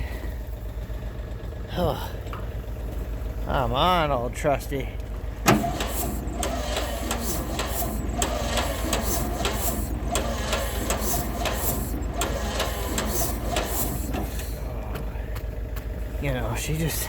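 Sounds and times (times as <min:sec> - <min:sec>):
engine cranking without catching: 0:04.8 - 0:17.0.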